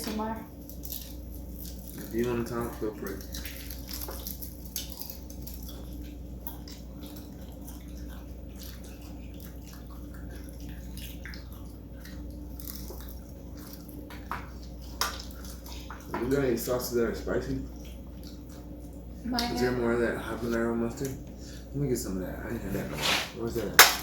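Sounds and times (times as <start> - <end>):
steady low hum: 0.0 - 24.0
people chewing crispy chicken: 0.6 - 19.7.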